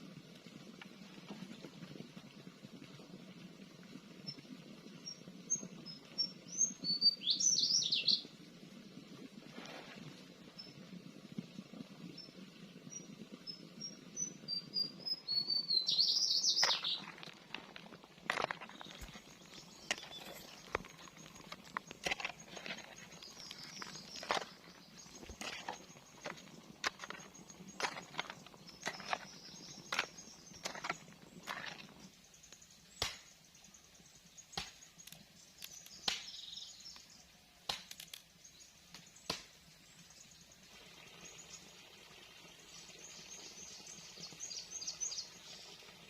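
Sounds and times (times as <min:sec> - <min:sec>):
low continuous rustling: 0:00.0 - 0:15.3, 0:15.9 - 0:46.0
small birds chirping: 0:05.0 - 0:08.3, 0:12.0 - 0:46.0
knocks and scuffs on ground: 0:16.4 - 0:32.1.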